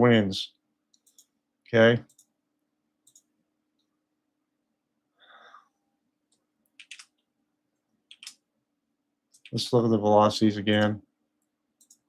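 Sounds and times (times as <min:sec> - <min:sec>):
computer mouse clicks: 0:00.9 - 0:01.4, 0:02.0 - 0:02.4, 0:03.0 - 0:03.3, 0:06.3 - 0:07.3, 0:08.1 - 0:08.4, 0:09.3 - 0:09.6, 0:10.7 - 0:12.0
soft breath: 0:05.1 - 0:05.9.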